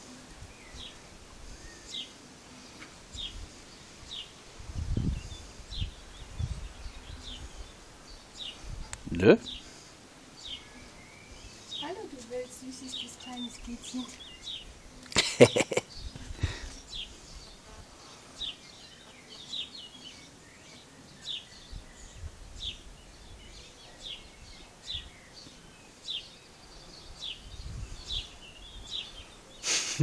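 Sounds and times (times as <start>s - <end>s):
bird chirping: 10.3s - 29.7s.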